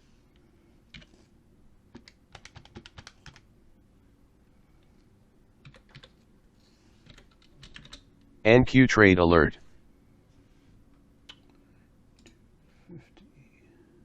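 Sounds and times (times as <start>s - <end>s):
keyboard typing: 0.9s - 1.1s, 1.9s - 3.5s, 5.6s - 6.2s, 7.0s - 8.1s.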